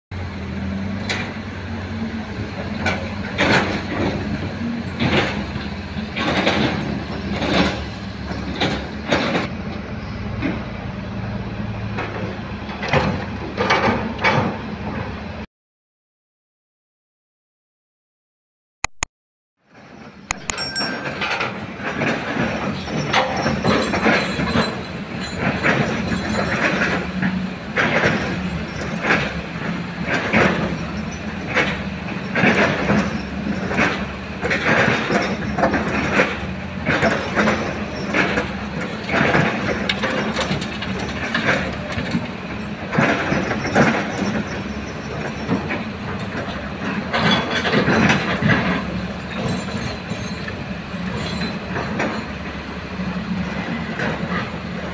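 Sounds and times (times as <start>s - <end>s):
excavator engine running: 0.2s - 15.4s, 19.8s - 54.9s
metallic clanking and rattling: 5.0s - 9.5s, 20.3s - 52.6s.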